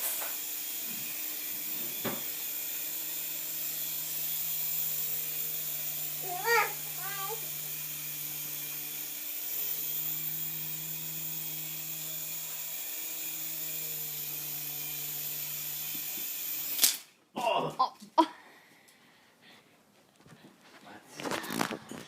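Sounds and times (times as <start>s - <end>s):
toy helicopter motor whirring: 0.0s - 17.1s.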